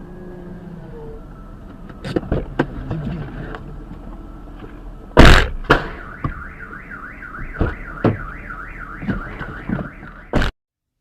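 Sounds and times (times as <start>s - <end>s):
warbling car alarm: 5.9s - 10.5s.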